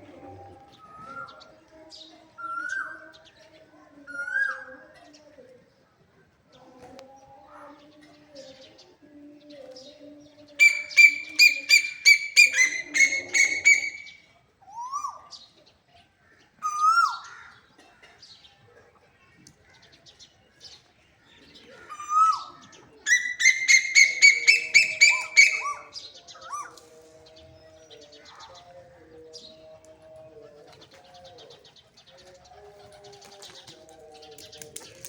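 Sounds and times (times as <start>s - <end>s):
koel calling fast high notes: 10.6s - 14.2s.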